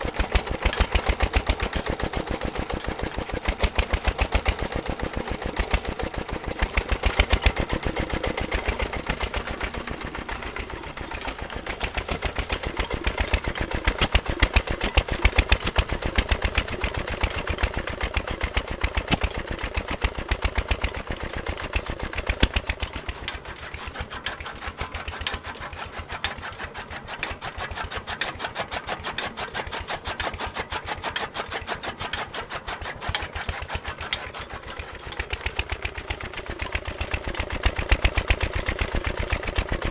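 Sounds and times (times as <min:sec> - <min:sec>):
chaff cutter chopping and clattering: 0:00.0 - 0:39.9
engine running: 0:00.0 - 0:39.9.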